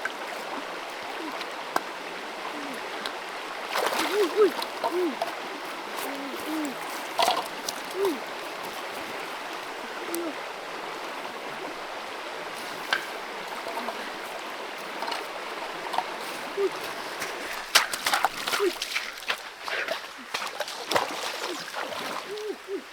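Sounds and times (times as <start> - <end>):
creek water running: 0.0 - 22.9
small splashes and clicks: 2.6 - 10.4, 12.5 - 22.6
short low arched calls: 4.1 - 8.4, 9.7 - 12.0, 16.4 - 16.9, 22.3 - 22.9.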